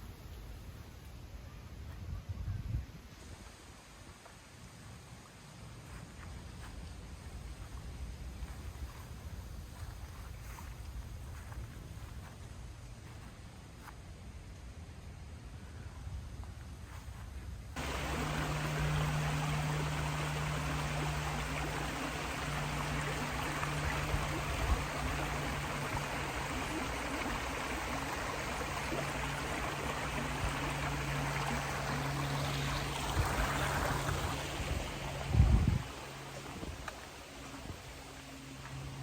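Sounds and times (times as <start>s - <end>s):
low steady hum: 0.0s - 39.0s
stream rushing water: 17.8s - 39.0s.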